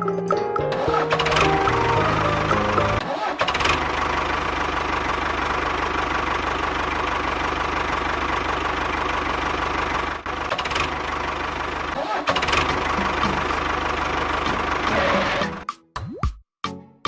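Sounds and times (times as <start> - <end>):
music: 0.0 - 3.0, 12.7 - 13.6, 14.5 - 17.0
small engine running: 0.8 - 15.6.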